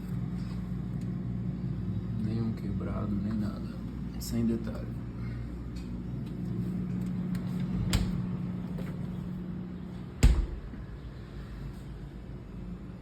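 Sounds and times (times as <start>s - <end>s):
steady low hum: 0.0s - 13.0s
refrigerator door thump: 10.2s - 11.0s.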